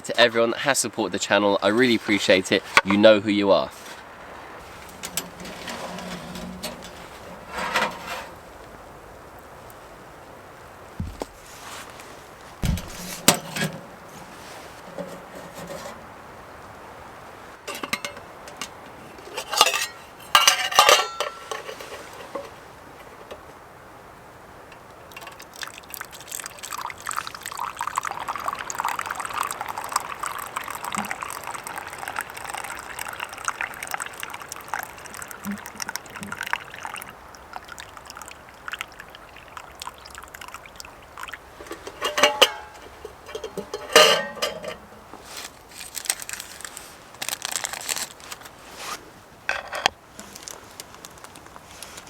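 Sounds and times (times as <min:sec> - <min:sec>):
pot knocking and clinking: 0:17.7 - 0:18.8, 0:19.4 - 0:22.5, 0:41.6 - 0:44.9
tea pouring into a cup: 0:25.1 - 0:44.7.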